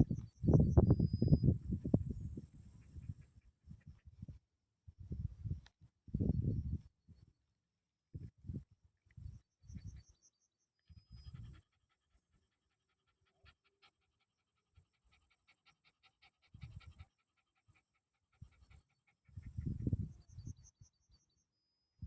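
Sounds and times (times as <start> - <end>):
animal panting: 10.9 - 20.3.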